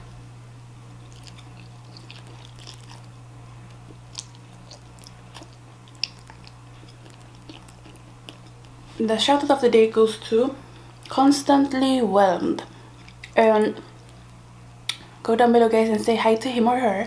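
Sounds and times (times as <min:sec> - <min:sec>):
low hum: 0:00.0 - 0:15.3
person chewing noodles: 0:00.9 - 0:08.9.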